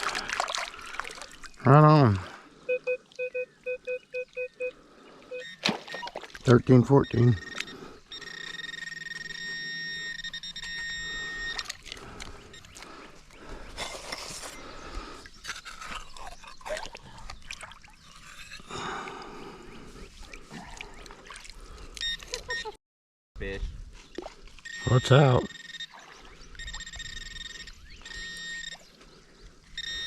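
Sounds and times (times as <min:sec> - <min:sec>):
metal detector high tone: 0:05.3 - 0:11.8, 0:24.7 - 0:28.9, 0:29.8 - 0:30.0.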